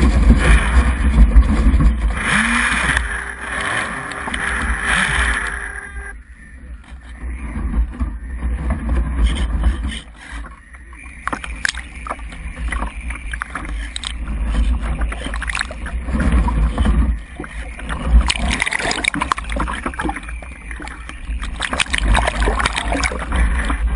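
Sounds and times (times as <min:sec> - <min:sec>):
gusty wind on microphone: 0:00.0 - 0:23.9
faint ticks and rustles: 0:06.6 - 0:23.9.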